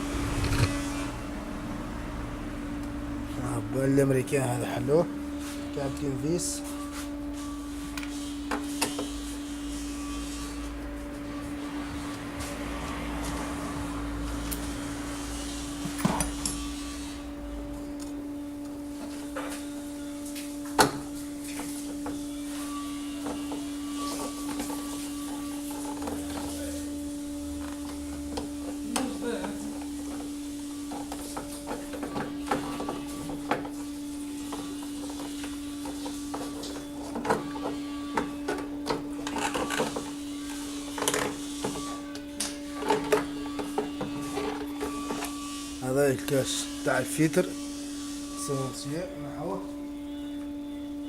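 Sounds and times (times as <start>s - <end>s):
steady hum: 0.0s - 8.4s.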